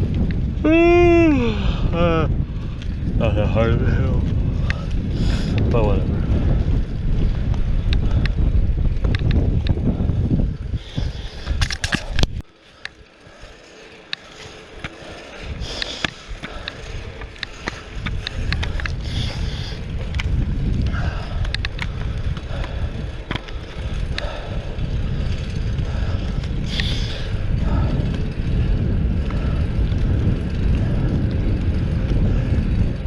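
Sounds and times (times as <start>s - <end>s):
bicycle tyre rumble on pavement: 0.0s - 33.0s
bike clicks and rattles: 0.0s - 33.0s
wind on microphone: 0.0s - 33.0s.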